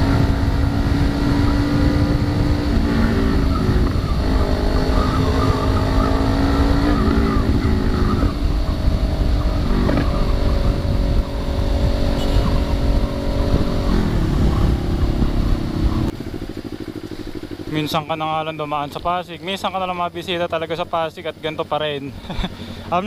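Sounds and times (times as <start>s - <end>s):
wind rush on microphone: 0.0s - 16.6s
motorcycle engine running: 0.0s - 23.0s.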